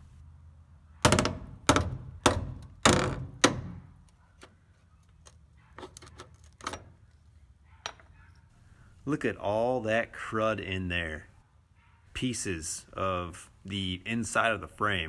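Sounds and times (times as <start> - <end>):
hammer striking steel frame: 1.0 - 4.0.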